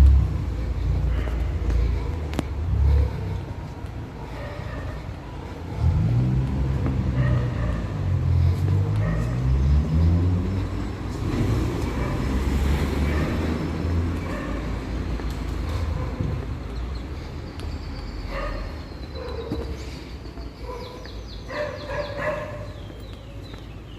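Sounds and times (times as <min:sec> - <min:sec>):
street traffic noise: 0:00.0 - 0:23.9
car engine accelerating: 0:05.6 - 0:16.5.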